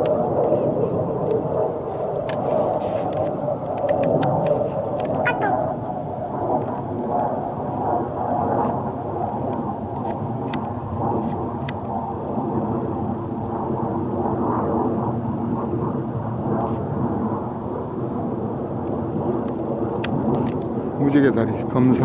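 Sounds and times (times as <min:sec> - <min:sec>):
wind blowing over microphone: 0:00.0 - 0:22.0.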